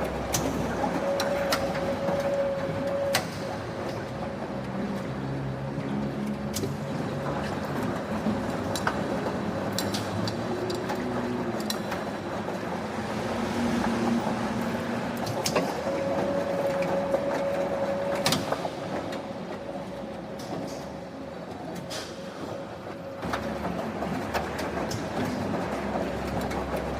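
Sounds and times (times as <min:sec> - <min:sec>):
factory machinery running: 0:00.0 - 0:26.9.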